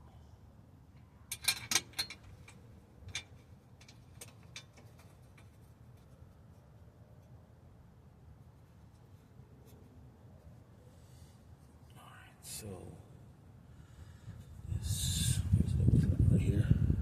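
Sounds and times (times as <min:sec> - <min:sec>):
tools clicking and knocking: 0:01.3 - 0:06.1.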